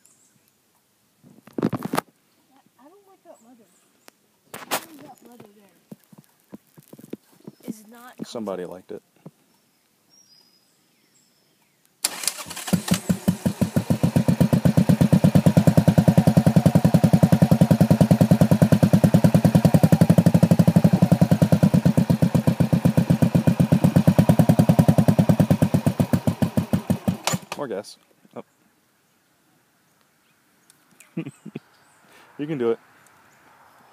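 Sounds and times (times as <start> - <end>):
small motorcycle engine starting: 12.0 - 27.7.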